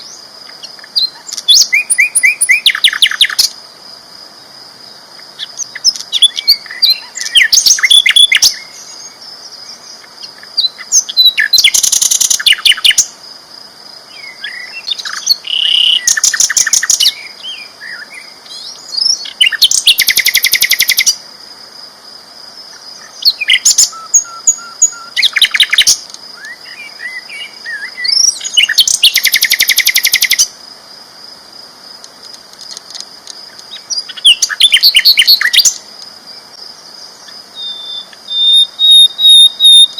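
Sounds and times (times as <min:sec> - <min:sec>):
bird trills and whistles: 0:23.3 - 0:30.4, 0:37.6 - 0:39.9.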